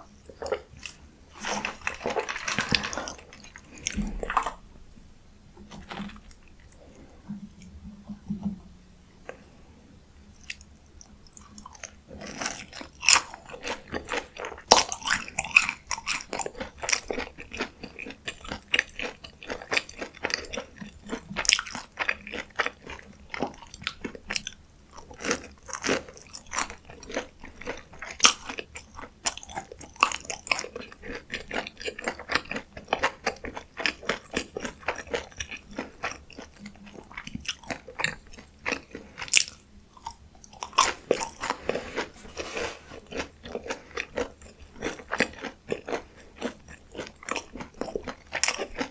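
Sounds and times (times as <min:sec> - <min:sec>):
crackling crunches: 0:00.4 - 0:04.6, 0:37.5 - 0:48.9
crunchy bites: 0:00.4 - 0:04.6, 0:37.0 - 0:42.4
wet chewing: 0:00.4 - 0:04.6, 0:29.2 - 0:48.9.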